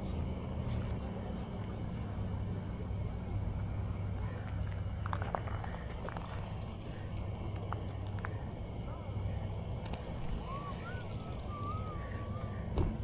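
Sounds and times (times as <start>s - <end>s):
insects trilling: 0.0s - 8.6s, 9.4s - 13.0s
low background hum: 0.0s - 13.0s
faint clicks: 9.8s - 12.5s.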